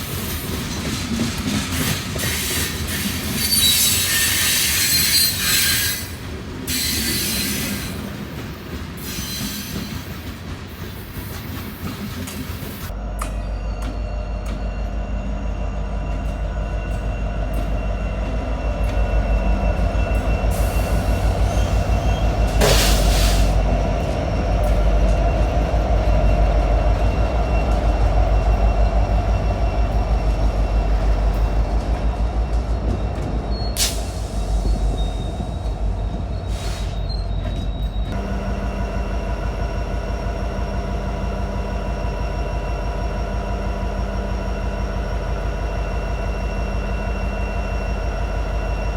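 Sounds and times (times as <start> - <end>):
freight train rumbling past: 0.0 - 48.9
faint wheel squeal: 33.5 - 38.2.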